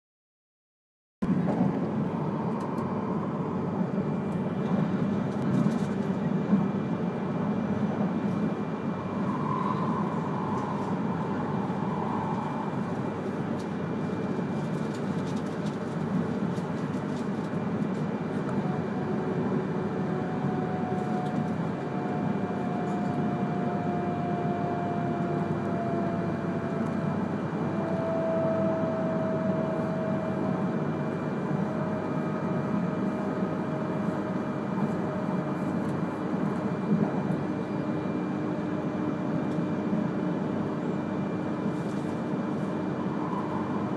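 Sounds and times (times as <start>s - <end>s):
train wheels rumbling inside cabin: 1.2s - 43.9s
faint whine falling in pitch: 8.4s - 14.4s, 42.3s - 43.9s.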